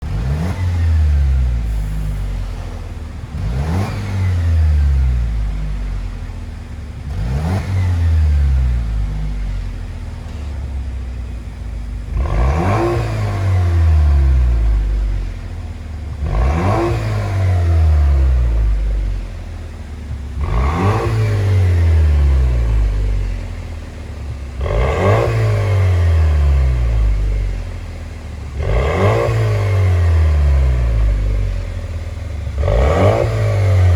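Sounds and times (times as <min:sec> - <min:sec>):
car engine revving: 0:00.0 - 0:33.9.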